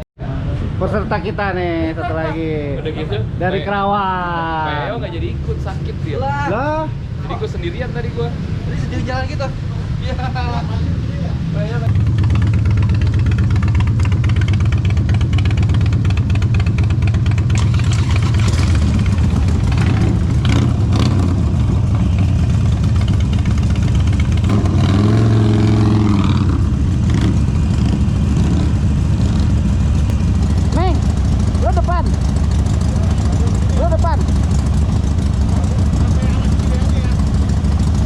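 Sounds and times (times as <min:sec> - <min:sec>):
motorcycle engine rumbling: 0:00.3 - 0:38.0.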